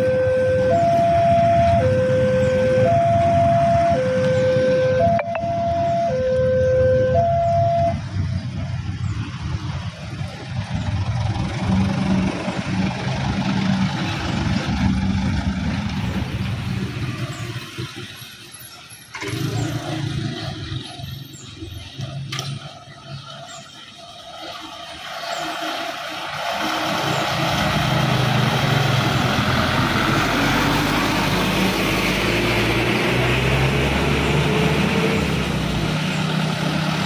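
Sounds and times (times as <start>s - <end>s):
diesel train engine passing: 7.9s - 37.0s
engine starting: 18.7s - 22.7s.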